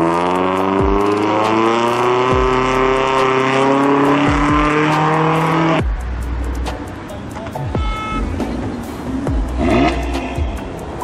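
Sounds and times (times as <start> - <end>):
car engine accelerating: 0.0 - 7.1, 8.2 - 11.0
deep bass thumps: 2.3 - 3.0, 4.3 - 4.8, 9.3 - 10.7.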